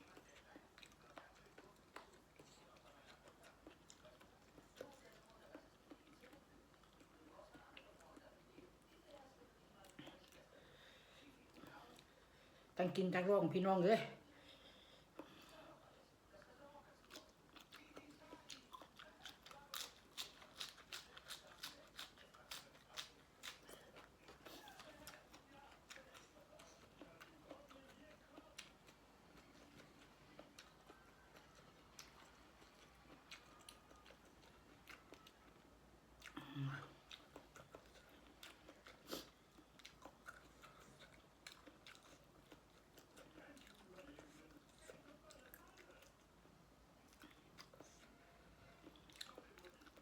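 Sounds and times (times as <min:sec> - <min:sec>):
person chewing crunchy food: 0:00.0 - 0:08.7, 0:17.0 - 0:35.6, 0:36.2 - 0:46.3, 0:47.1 - 0:48.2, 0:48.8 - 0:50.0.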